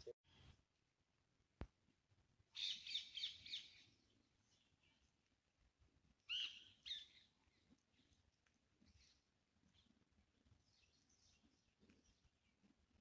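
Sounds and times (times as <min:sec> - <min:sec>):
birds chirping: 0:02.6 - 0:05.0.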